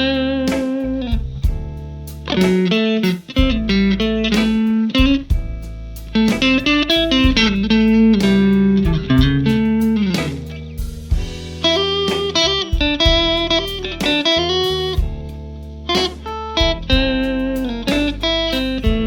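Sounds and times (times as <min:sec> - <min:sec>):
electric guitar playing: 0:00.0 - 0:19.0.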